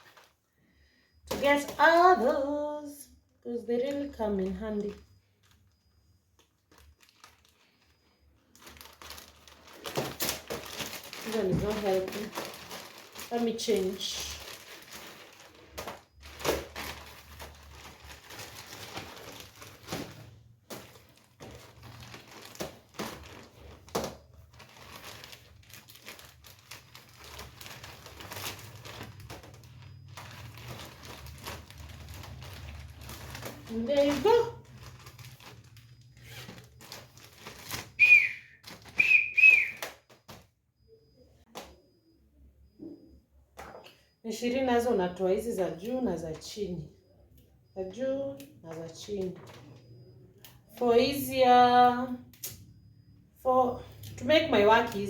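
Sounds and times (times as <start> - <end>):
plastic bags rustling: 0.0 - 40.6, 48.7 - 50.1
high whistling chirps: 37.9 - 39.9.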